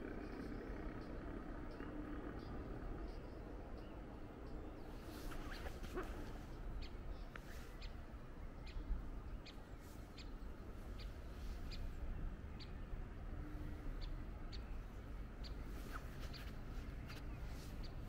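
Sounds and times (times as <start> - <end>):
low outdoor rumble: 0.0 - 18.0
small bird chirping: 13.9 - 18.0.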